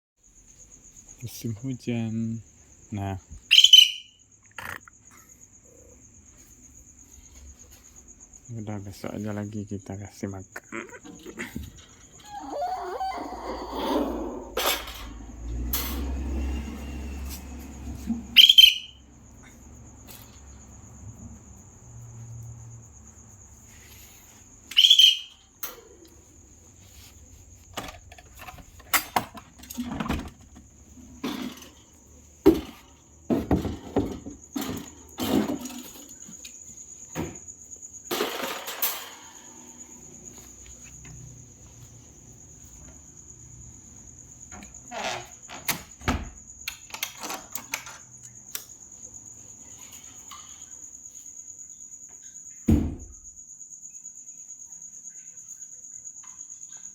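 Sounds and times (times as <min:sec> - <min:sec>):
insect drone: 0:00.2 - 0:56.9
birds screeching: 0:03.5 - 0:04.8, 0:10.7 - 0:14.6, 0:18.2 - 0:19.1, 0:24.7 - 0:26.0
knocks and rustles: 0:25.6 - 0:39.3.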